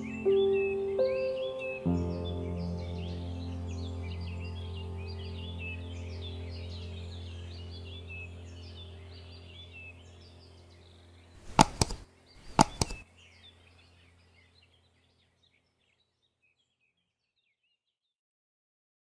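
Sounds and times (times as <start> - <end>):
sharp knocks or whooshes: 11.4 - 13.0.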